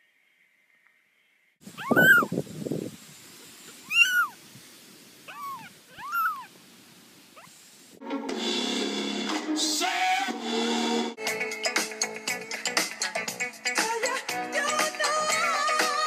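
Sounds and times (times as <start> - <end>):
cat meowing: 1.7 - 2.4, 3.8 - 4.4, 5.3 - 6.5.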